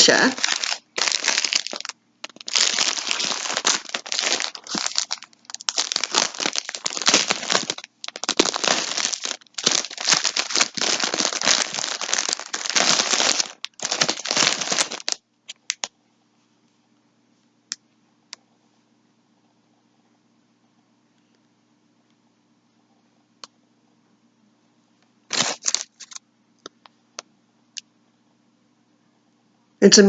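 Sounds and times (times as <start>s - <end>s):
packaging crinkling and rustling: 0.0s - 15.9s, 25.3s - 26.2s.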